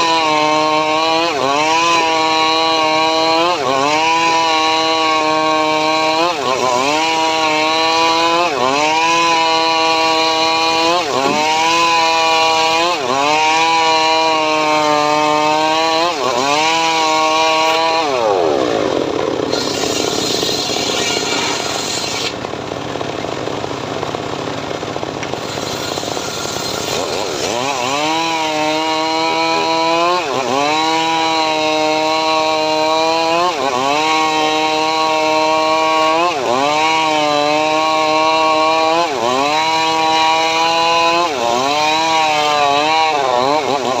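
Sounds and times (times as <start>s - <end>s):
chainsaw engine cutting wood: 0.0s - 44.0s.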